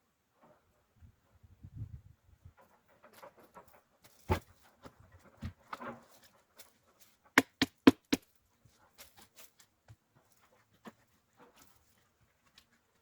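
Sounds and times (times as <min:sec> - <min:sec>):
firewood logs knocking together: 0:07.4 - 0:08.3.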